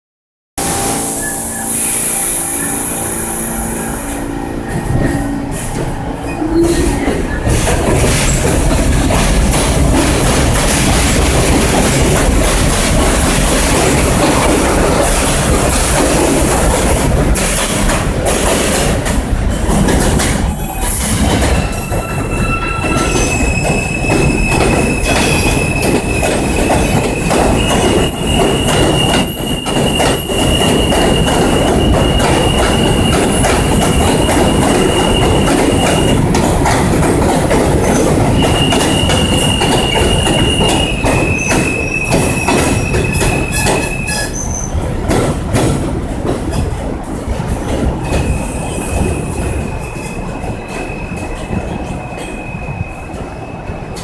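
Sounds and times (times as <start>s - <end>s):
subway train wheels rattling: 0.6s - 54.0s
high-pitched wheel squeal: 0.7s - 8.5s, 20.5s - 36.2s, 37.9s - 44.8s.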